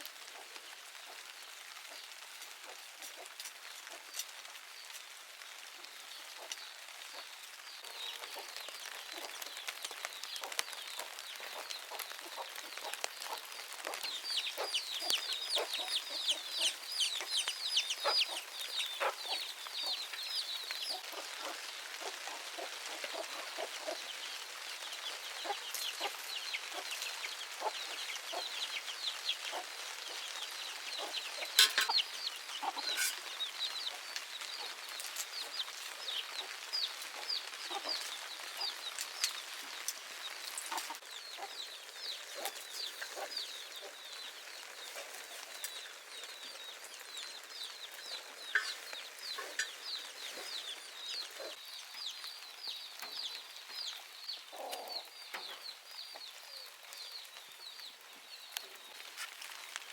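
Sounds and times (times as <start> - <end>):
chickens chirping: 1.0 - 59.9.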